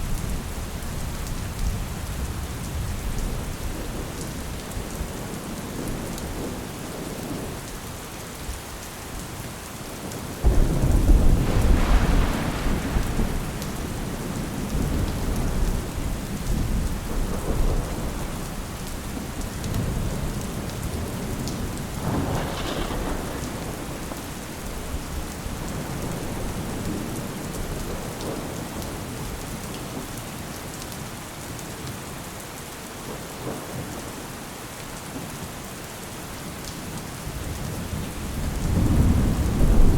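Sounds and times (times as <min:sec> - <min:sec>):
steady rain: 0:00.0 - 0:39.9
thunder rumbling: 0:10.4 - 0:29.2, 0:37.5 - 0:39.9.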